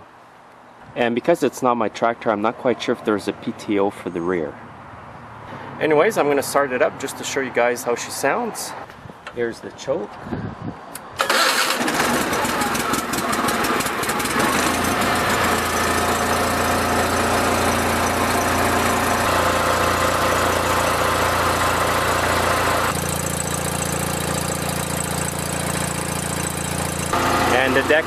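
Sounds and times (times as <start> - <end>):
lawn tractor engine running: 11.2 - 28.0.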